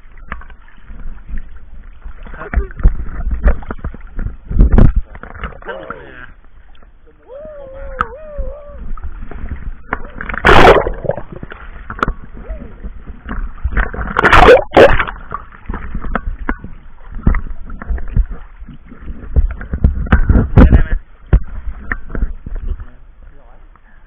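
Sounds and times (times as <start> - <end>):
low rumble of water: 0.0 - 24.0
sea water sloshing: 0.0 - 24.0
loud splashes: 7.3 - 12.9, 13.6 - 15.8.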